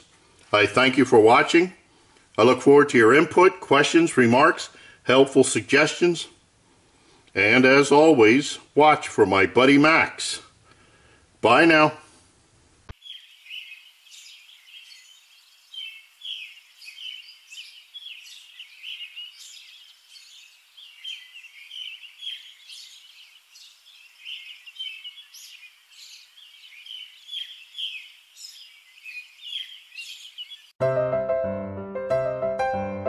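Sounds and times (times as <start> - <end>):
small birds chirping: 12.9 - 30.8.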